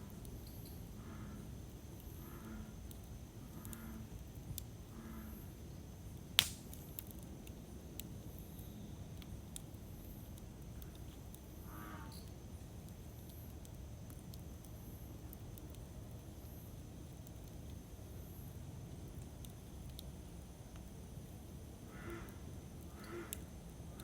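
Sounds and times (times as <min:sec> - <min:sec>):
campfire crackling: 0:00.1 - 0:24.0
fire popping loudly: 0:06.2 - 0:07.6.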